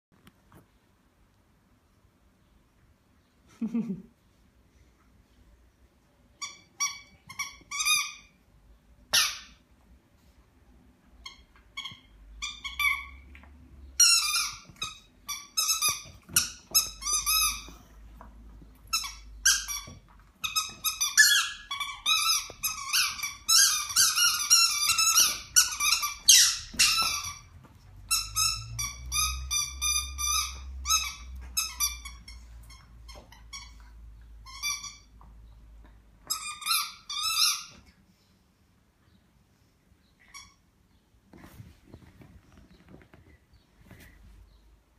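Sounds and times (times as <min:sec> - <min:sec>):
squeaky dog toy squeaking: 0:06.4 - 0:08.4, 0:09.1 - 0:09.6, 0:11.2 - 0:13.3, 0:14.0 - 0:17.8, 0:18.8 - 0:35.2, 0:36.2 - 0:37.8, 0:40.2 - 0:40.7.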